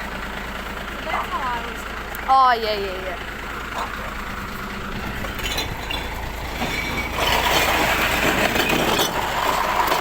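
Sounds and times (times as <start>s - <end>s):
truck engine running: 0.0s - 10.0s
clattering rush of glass: 5.3s - 10.0s.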